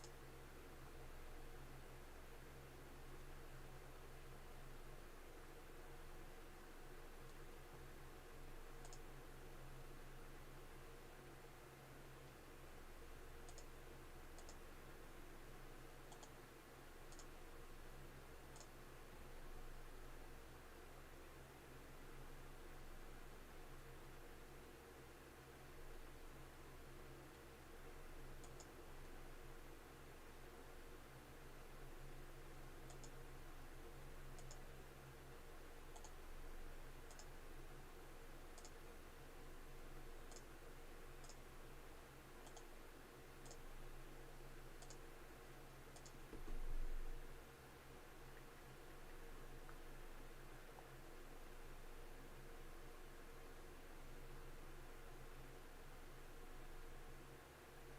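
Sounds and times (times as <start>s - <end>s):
computer mouse clicks: 0.0s - 0.2s, 8.7s - 9.2s, 13.4s - 14.7s, 16.1s - 16.4s, 17.1s - 17.4s, 18.5s - 18.8s, 28.4s - 29.2s, 32.8s - 33.2s, 34.3s - 34.8s, 35.9s - 36.2s, 37.0s - 37.4s, 38.5s - 38.9s, 40.2s - 40.5s, 41.2s - 41.5s, 42.4s - 42.8s, 43.4s - 43.7s, 44.8s - 45.1s, 45.9s - 46.9s
low steady hum: 0.0s - 57.9s
computer mouse double clicks: 13.5s - 13.7s.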